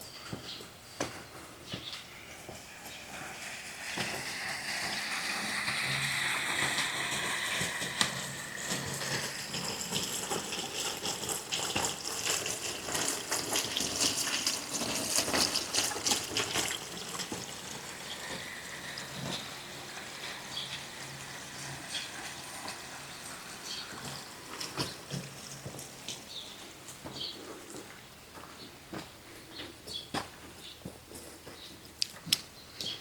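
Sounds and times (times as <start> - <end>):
running water splashing: 2.2 - 26.8.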